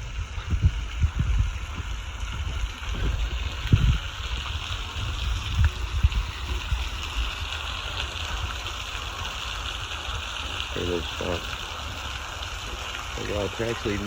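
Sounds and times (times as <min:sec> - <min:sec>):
low thumps: 0:00.0 - 0:04.2
creek running over rocks: 0:00.0 - 0:14.0.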